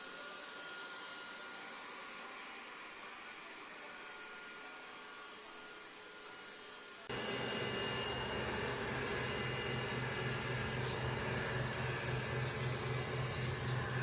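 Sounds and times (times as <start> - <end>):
robot vacuum cleaner whirring: 0.0 - 14.0
low hum: 7.1 - 14.0.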